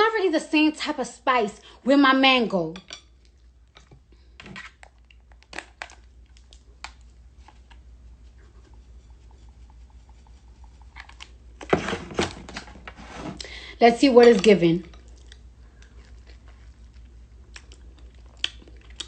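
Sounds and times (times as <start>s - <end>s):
shaking seasoning container: 7.4s - 11.3s.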